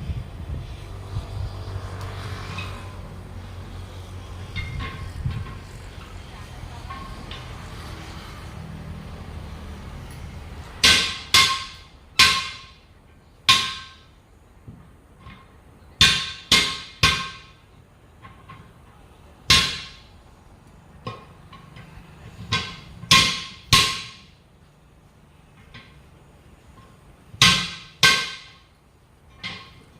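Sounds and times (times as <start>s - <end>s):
hammer striking steel wheel: 4.4s - 5.6s, 10.8s - 12.9s, 13.5s - 14.1s, 15.2s - 17.6s, 19.5s - 20.1s, 21.0s - 24.4s, 26.8s - 29.9s.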